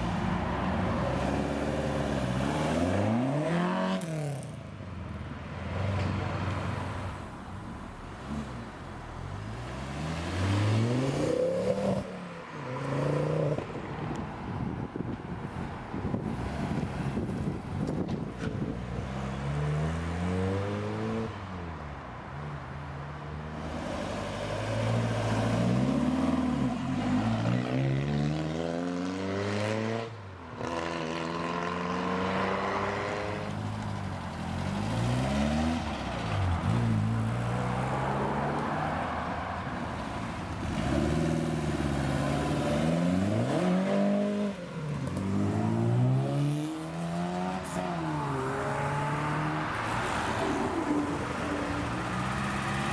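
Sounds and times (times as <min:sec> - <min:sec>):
cars revving pulling away: 0:00.1 - 0:04.6, 0:08.1 - 0:13.8, 0:18.7 - 0:21.5, 0:23.6 - 0:52.9.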